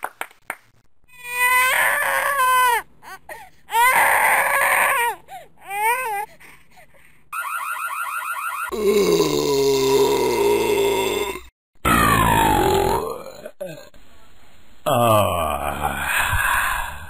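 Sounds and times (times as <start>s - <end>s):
infant crying: 1.1s - 6.4s.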